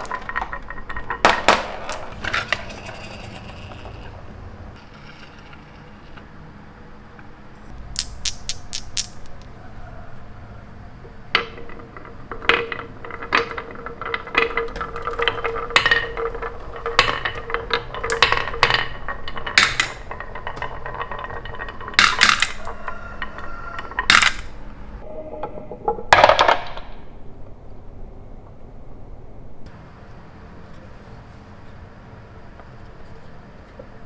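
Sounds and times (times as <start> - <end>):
small hard objects clinking: 0.0 - 4.2, 7.7 - 10.1, 11.3 - 24.6.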